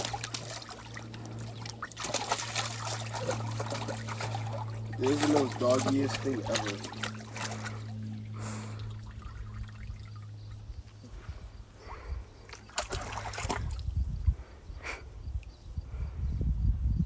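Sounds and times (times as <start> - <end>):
water splashing in a pool: 0.0 - 10.4, 12.5 - 13.9
steady low hum: 0.0 - 17.0.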